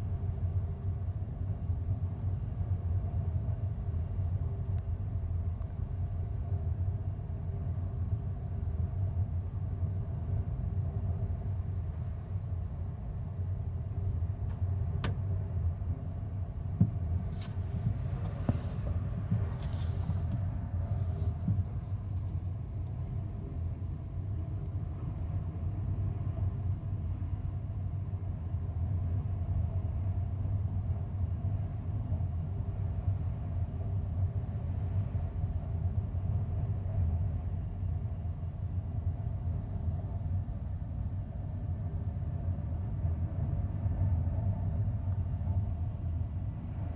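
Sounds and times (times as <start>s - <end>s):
light clicks and rattles: 16.8s - 22.4s.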